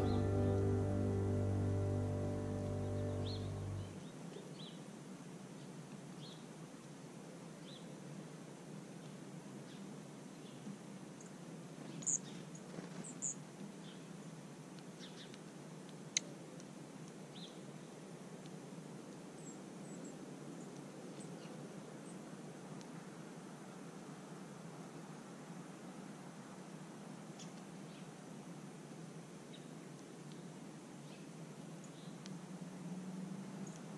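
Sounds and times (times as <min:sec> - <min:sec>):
birds chirping: 0:00.0 - 0:04.7
steady outdoor hiss: 0:00.0 - 0:33.9.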